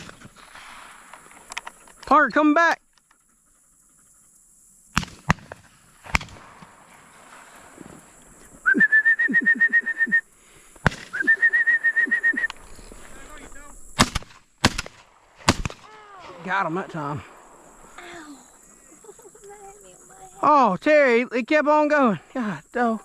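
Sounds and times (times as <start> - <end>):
shotgun shots: 5.0 - 6.9, 10.8 - 11.2, 14.0 - 17.6
high trilled whistles: 8.6 - 10.4, 11.1 - 12.9.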